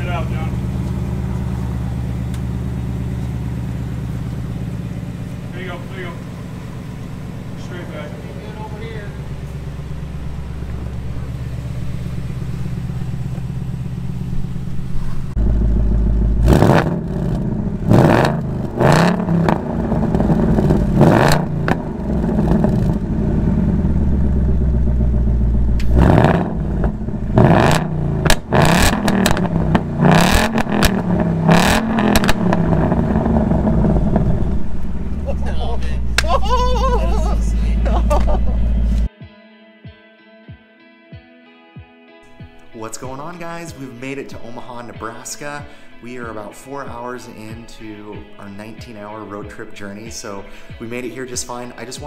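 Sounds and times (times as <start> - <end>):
car engine idling and revving: 0.0 - 39.1.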